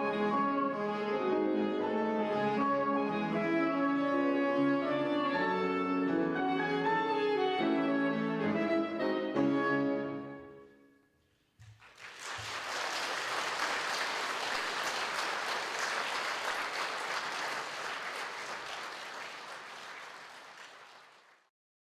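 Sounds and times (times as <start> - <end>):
audience applauding: 11.6 - 21.5.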